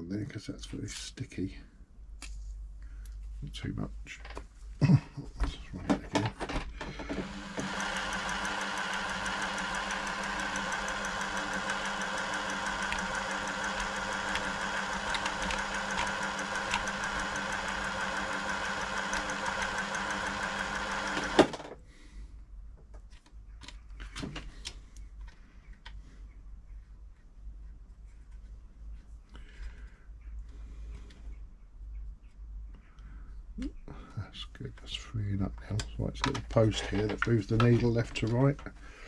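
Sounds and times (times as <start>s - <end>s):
sewing machine click: 6.9s - 21.7s
sewing machine running: 6.9s - 21.7s
faint handling noises: 22.7s - 33.1s, 34.6s - 38.8s.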